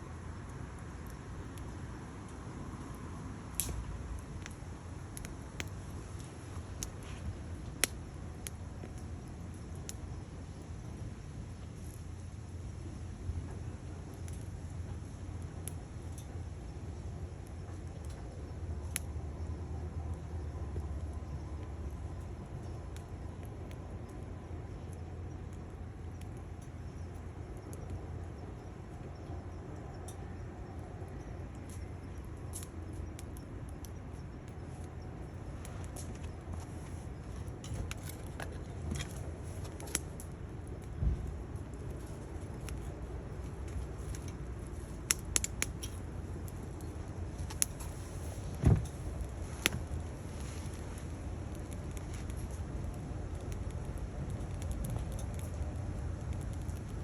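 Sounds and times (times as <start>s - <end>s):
firewood crackling in stove: 0.0s - 57.0s
sharp pops and snaps: 37.7s - 48.0s, 48.6s - 57.0s
dull thump: 48.6s - 48.9s.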